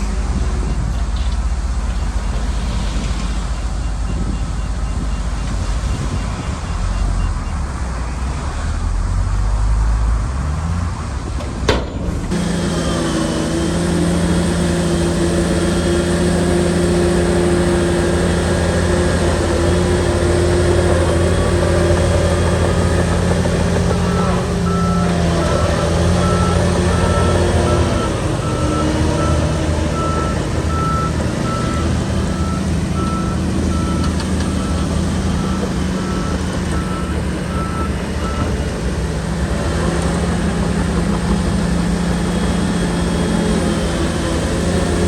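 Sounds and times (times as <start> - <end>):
reversing alarm beeping: 0.0 - 8.3, 15.5 - 38.8
bulldozer diesel engine running: 0.0 - 45.0.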